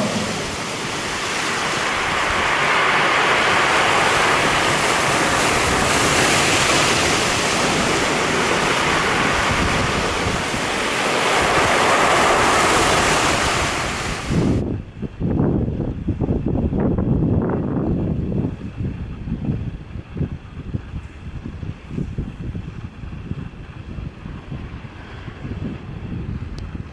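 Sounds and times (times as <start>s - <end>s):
waves breaking: 0.0s - 14.6s
wind buffeting microphone: 0.0s - 26.9s.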